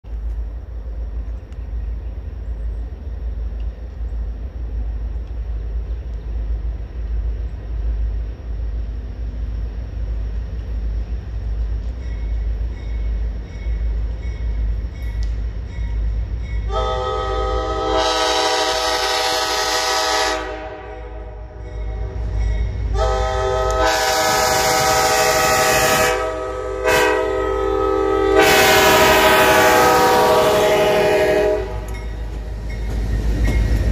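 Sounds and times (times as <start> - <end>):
train rumbling: 0.0 - 33.9
locomotive air horn: 16.7 - 22.2, 22.9 - 31.9.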